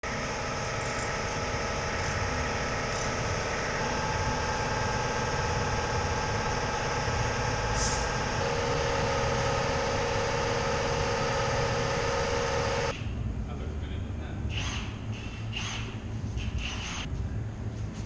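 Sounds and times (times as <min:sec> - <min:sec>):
car engine idling: 0:00.1 - 0:12.9.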